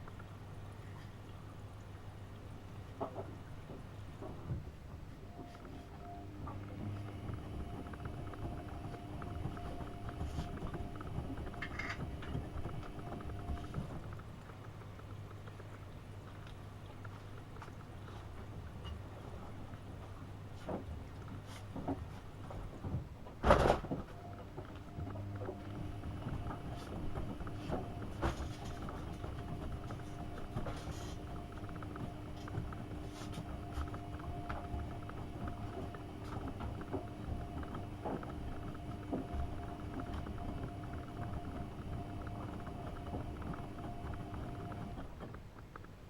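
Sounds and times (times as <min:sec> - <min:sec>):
water and laundry sloshing: 0:00.0 - 0:45.6
washing machine motor humming: 0:03.9 - 0:16.2, 0:21.8 - 0:45.8.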